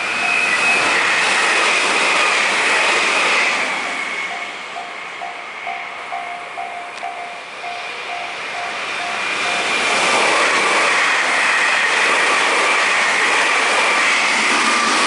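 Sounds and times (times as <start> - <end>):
level-crossing warning bell dinging: 0.0 - 1.6, 3.4 - 12.0
passing train with steady whine: 0.0 - 15.0.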